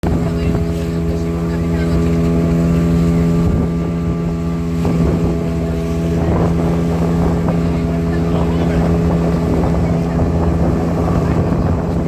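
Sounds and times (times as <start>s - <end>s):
motorboat engine running: 0.0s - 12.0s
wind noise: 3.2s - 5.5s, 6.1s - 12.0s.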